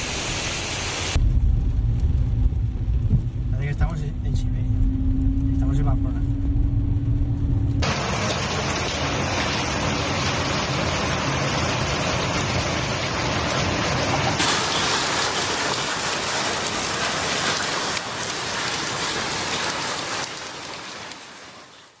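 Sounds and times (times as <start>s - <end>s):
heavy rain pouring: 0.0s - 1.2s, 7.8s - 22.0s.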